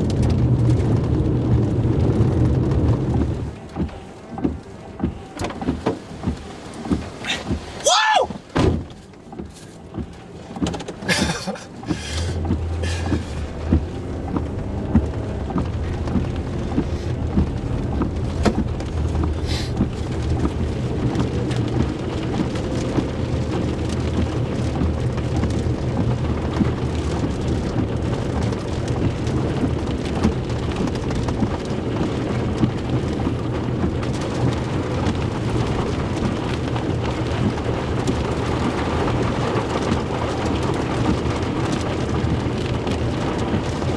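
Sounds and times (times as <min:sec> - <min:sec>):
heavy rain falling: 0:00.0 - 0:43.9
low rumble: 0:11.1 - 0:30.1.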